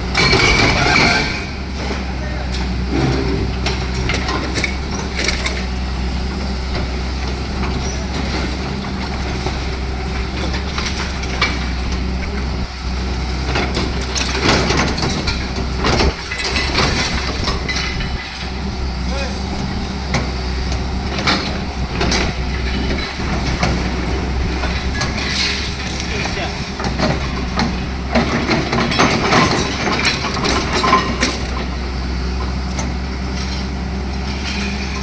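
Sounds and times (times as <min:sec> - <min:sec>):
heavy machine engine droning: 0:00.0 - 0:35.0.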